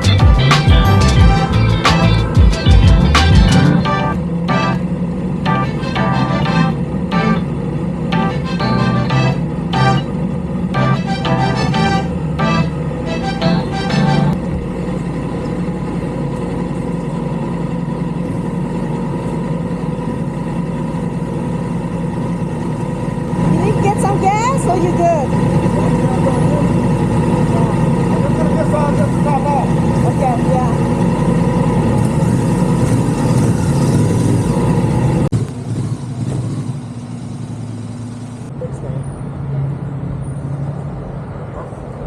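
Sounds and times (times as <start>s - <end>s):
quiet steady engine hum: 14.3s - 39.0s.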